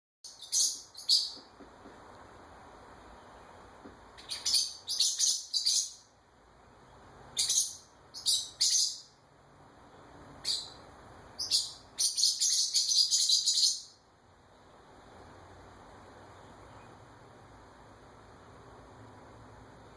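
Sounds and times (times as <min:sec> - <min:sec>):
small bird chirping rapidly: 0:00.2 - 0:01.7, 0:03.0 - 0:06.2, 0:06.8 - 0:09.2, 0:10.4 - 0:14.0.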